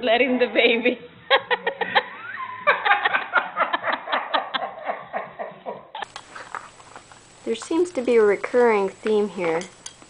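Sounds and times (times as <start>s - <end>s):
person laughing: 1.3s - 6.1s.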